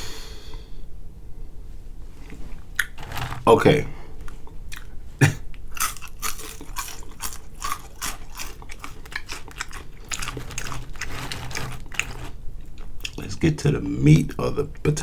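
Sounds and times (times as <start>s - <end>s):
chewing crunchy food: 4.2s - 5.0s, 5.6s - 13.3s.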